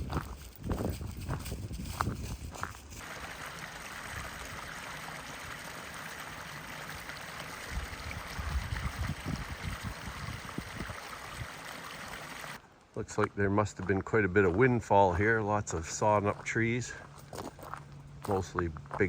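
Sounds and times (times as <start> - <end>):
stream water trickling: 3.0 - 12.6.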